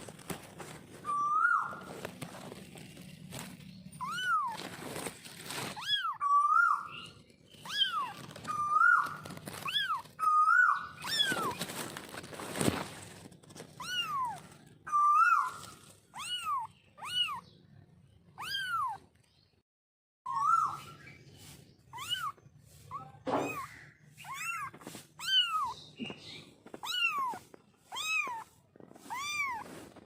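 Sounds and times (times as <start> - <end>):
noisy rustle: 0.0 - 6.1, 6.9 - 14.8, 21.3 - 30.0
kitten mewing: 13.8 - 17.4, 18.4 - 19.0, 21.9 - 25.8, 26.8 - 30.0.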